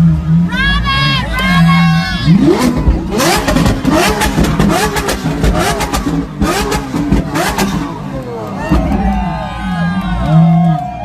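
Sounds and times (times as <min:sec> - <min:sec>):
car engine revving: 0:00.0 - 0:10.8.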